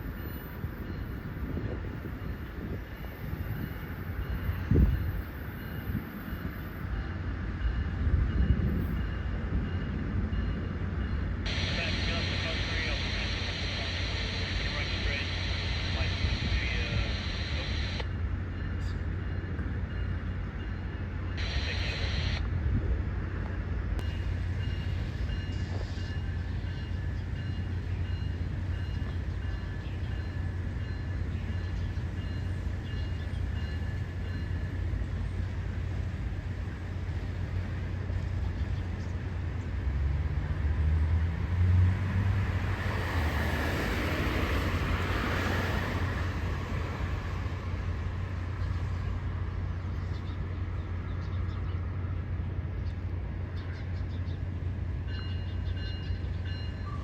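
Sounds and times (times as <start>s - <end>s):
low engine rumble: 11.5s - 18.0s.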